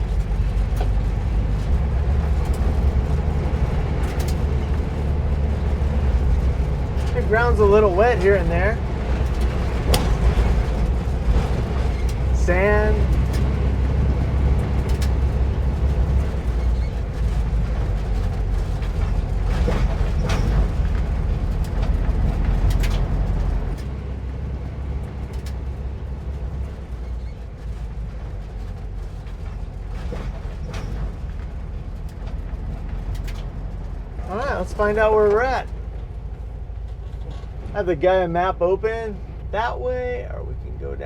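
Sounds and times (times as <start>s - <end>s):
body knocks and rattles: 0.0s - 23.8s
vehicle engine running: 0.0s - 41.0s.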